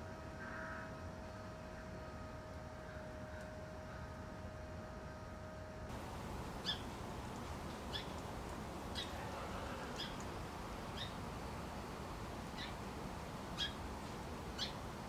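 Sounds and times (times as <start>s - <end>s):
steady hiss: 5.9s - 15.0s
small bird chip call: 6.0s - 11.3s, 12.5s - 12.8s, 13.5s - 13.8s, 14.6s - 14.9s.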